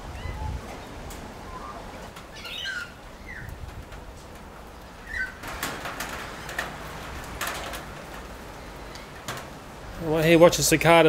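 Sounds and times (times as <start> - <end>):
birds warbling: 0.0 - 3.8, 4.6 - 7.1.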